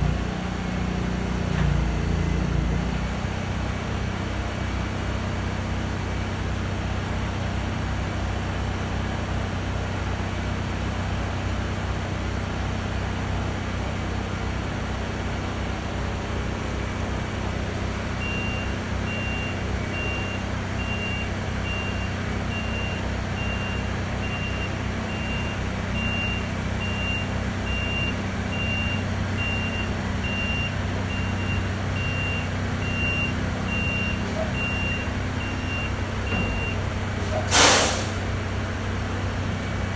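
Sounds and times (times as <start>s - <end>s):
truck engine running: 0.0s - 39.9s
reversing alarm beeping: 18.2s - 36.9s.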